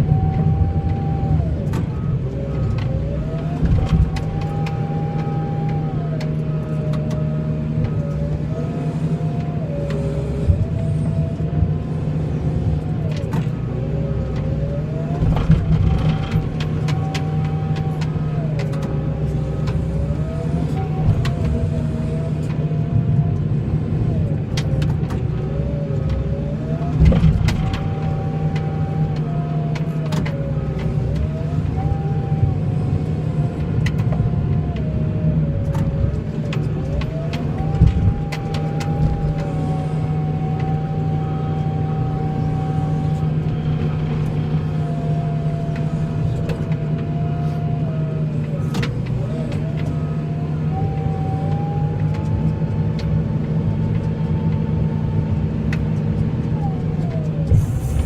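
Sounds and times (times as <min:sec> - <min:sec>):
snow plow engine running: 0:00.0 - 0:58.0
knocks and clunks: 0:00.2 - 0:07.2, 0:12.8 - 0:21.8, 0:24.5 - 0:32.1, 0:35.5 - 0:39.8.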